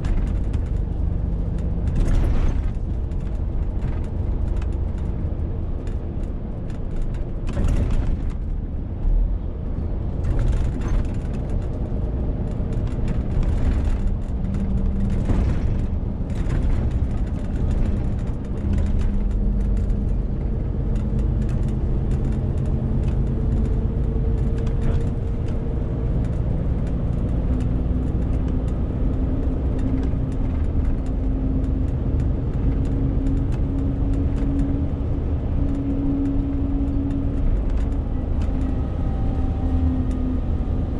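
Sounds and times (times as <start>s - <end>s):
lorry diesel engine droning: 9.4s - 40.9s.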